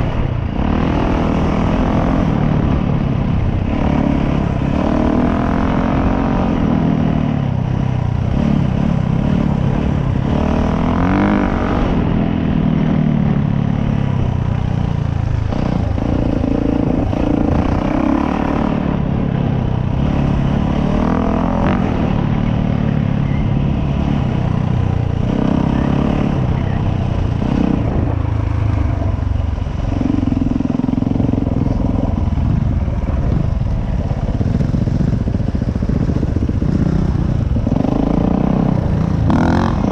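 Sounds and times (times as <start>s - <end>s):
dirt bike engine revving: 15.3s - 39.9s.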